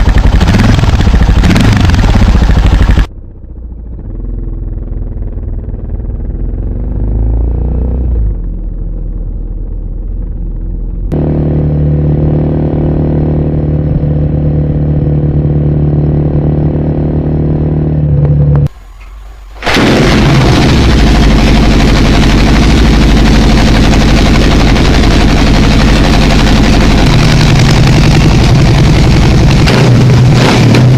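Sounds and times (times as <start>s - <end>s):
motorcycle engine idling: 0.0s - 6.8s, 20.4s - 30.9s
motorcycle engine running: 0.0s - 18.7s, 19.6s - 30.9s.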